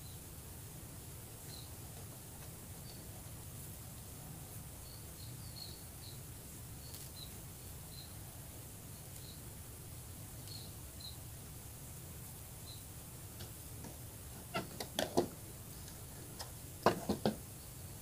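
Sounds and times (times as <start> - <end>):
small birds chirping: 1.4 - 3.4, 4.7 - 9.6, 10.4 - 11.5, 12.5 - 18.0.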